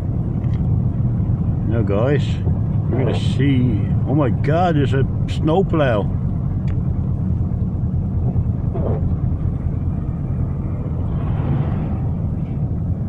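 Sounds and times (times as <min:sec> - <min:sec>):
car engine rumble: 0:00.0 - 0:13.0
tyres on snowy road: 0:00.0 - 0:13.0.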